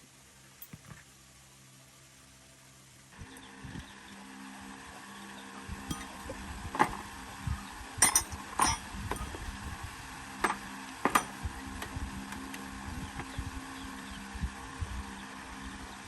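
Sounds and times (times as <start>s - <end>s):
low steady hum: 0.0s - 16.0s
hand tools clinking on metal: 5.9s - 7.0s, 8.0s - 9.6s, 10.4s - 11.4s.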